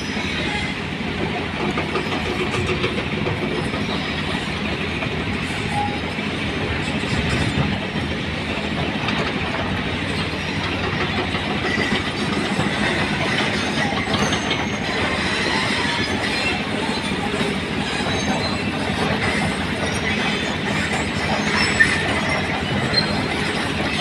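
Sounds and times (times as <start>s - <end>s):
heavy machinery clattering: 1.2s - 24.0s.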